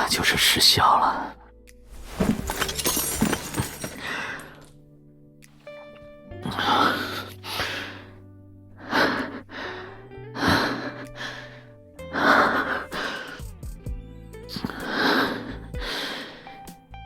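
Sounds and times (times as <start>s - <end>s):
soft background music: 0.0s - 17.0s
heavy breathing: 2.5s - 4.7s, 6.4s - 8.2s, 8.8s - 13.6s, 14.5s - 16.6s.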